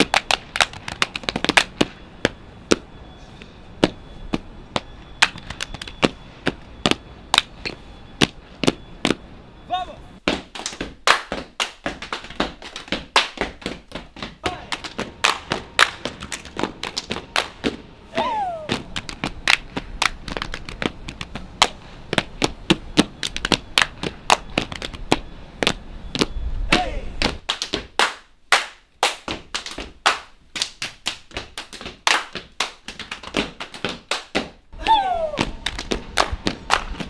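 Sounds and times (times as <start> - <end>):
body percussion claps and stomps: 0.0 - 2.0, 3.8 - 6.2, 10.2 - 17.8, 18.7 - 37.0
falling vocal sound: 18.0 - 18.9, 34.8 - 35.7.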